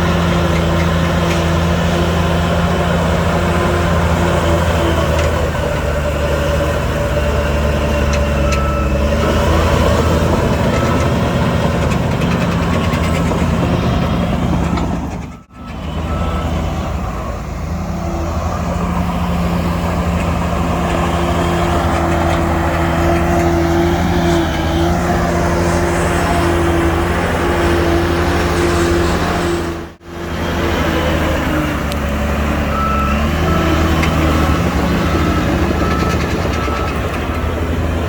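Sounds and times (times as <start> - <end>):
heavy machinery diesel engines: 0.0 - 38.0
reversing beeper: 7.3 - 17.6, 32.6 - 38.0.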